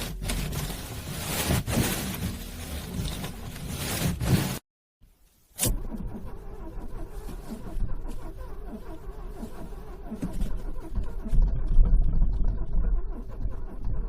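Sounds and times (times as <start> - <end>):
car starter motor cranking: 5.5 - 14.0
car engine running: 5.6 - 14.0.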